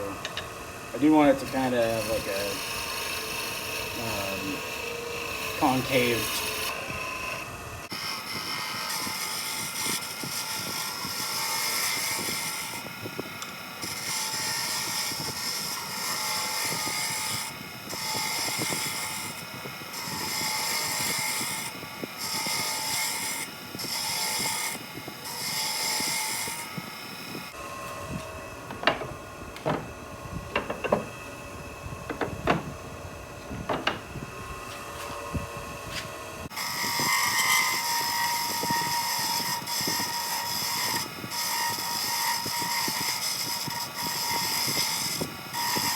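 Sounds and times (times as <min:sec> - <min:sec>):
chisel scraping spinning wood: 0:00.0 - 0:19.2, 0:20.0 - 0:45.9
lathe motor running: 0:27.5 - 0:41.0
sharp knocks: 0:28.7 - 0:31.2, 0:32.1 - 0:32.8, 0:33.6 - 0:34.2.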